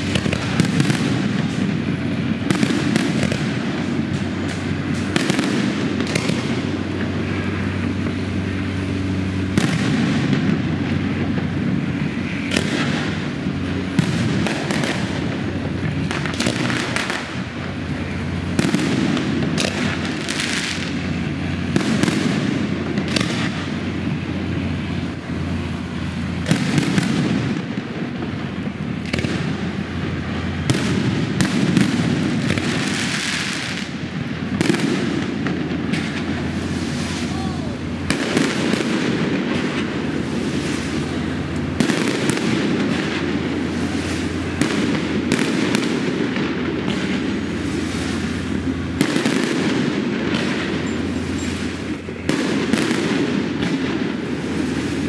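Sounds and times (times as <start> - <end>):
fireworks bangs and crackling: 0.0 - 55.0
steady low hum: 0.0 - 55.0.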